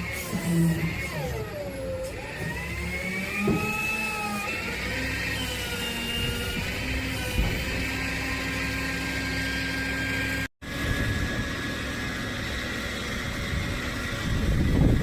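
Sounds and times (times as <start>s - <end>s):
truck engine running: 6.3s - 15.0s.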